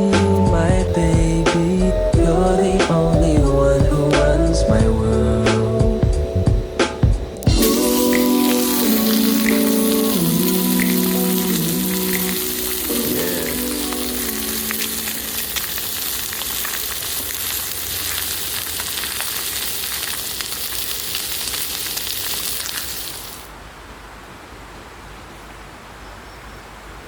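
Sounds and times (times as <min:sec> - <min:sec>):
background music: 0:00.0 - 0:15.5
food sizzling in a pan: 0:07.4 - 0:23.5.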